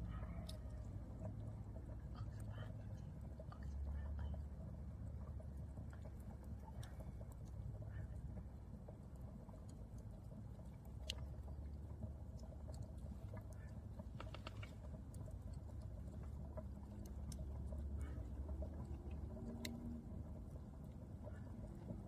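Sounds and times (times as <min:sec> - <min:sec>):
steady low rumble: 0:00.0 - 0:22.0
campfire crackling and popping: 0:08.5 - 0:22.0.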